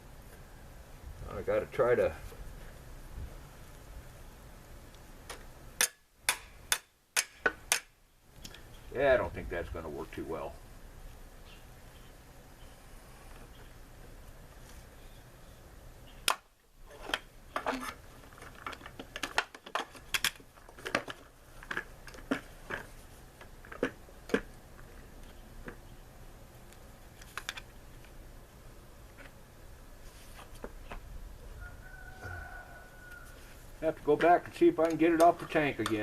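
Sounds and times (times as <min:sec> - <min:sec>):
hand tools clicking and knocking: 0:34.2 - 0:36.0.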